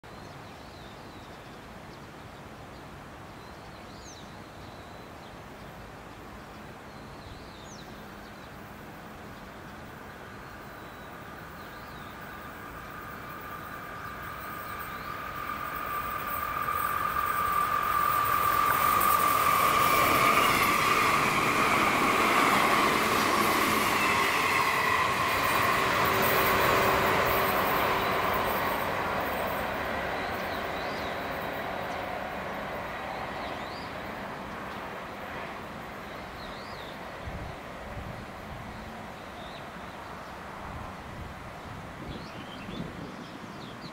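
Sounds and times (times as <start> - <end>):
electric train running noise: 8.8 - 37.9
steady high-pitched tone: 10.4 - 34.2.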